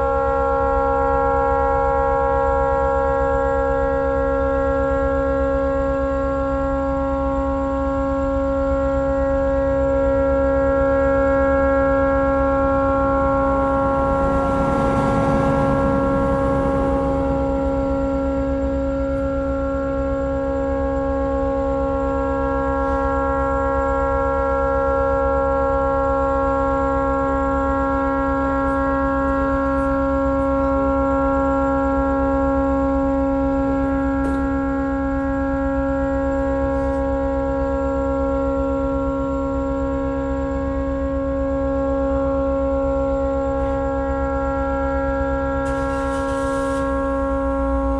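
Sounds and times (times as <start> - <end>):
tugboat horn blowing steady note: 0.0 - 47.9
rush of noise: 11.4 - 20.6.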